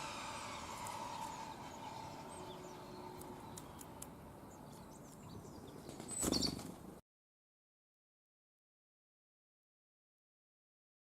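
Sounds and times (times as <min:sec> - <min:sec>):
outdoor background noise: 0:00.0 - 0:07.0.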